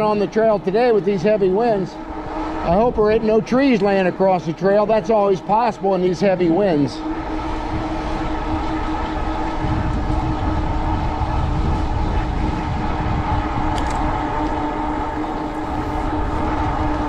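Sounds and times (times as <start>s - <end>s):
electric motor whine: 0.0s - 17.0s
wind buffeting microphone: 0.0s - 17.0s.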